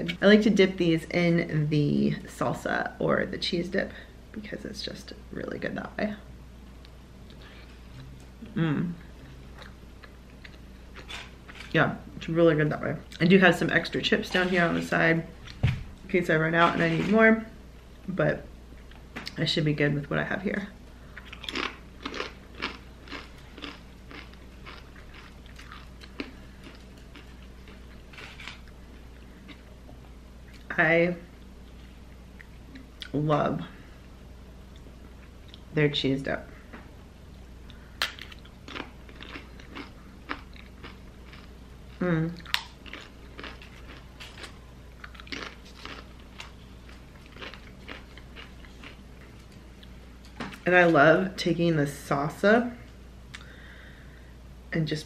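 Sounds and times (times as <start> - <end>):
crunching tortilla chip: 21.3 - 28.7, 42.4 - 49.0.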